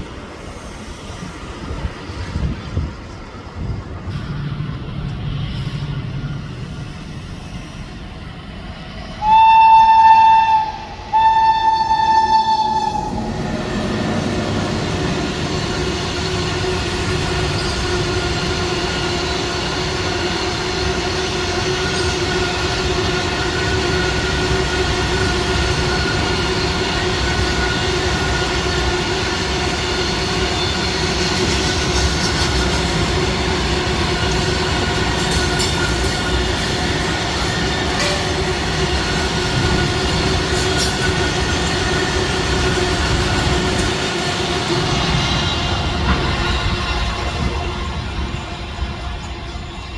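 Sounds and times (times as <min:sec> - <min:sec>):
train running past: 0:00.0 - 0:49.9
train horn blasts: 0:09.2 - 0:13.2.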